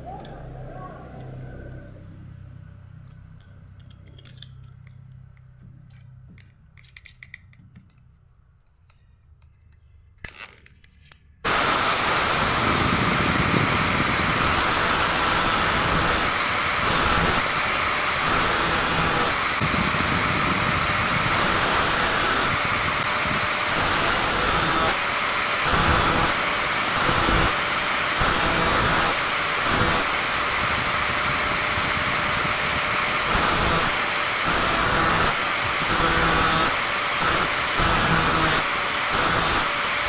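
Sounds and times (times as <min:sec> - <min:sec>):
angle grinder running: 0:11.4 - 0:40.0.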